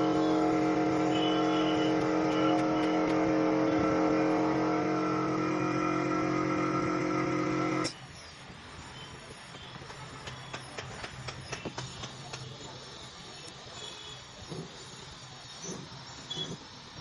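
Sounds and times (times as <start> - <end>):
motor running steadily: 0.0 - 8.0.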